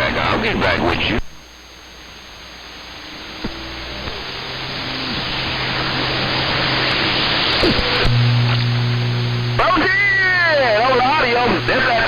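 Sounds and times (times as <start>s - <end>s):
low steady hum: 0.0s - 12.0s
radio static hiss: 0.0s - 12.0s
short sliding radio whistles: 7.5s - 8.2s.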